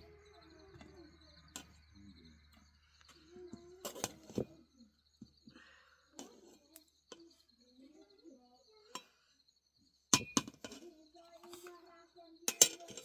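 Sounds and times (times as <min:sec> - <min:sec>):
sharp clinks and knocks: 0:10.1 - 0:11.8, 0:12.5 - 0:13.0.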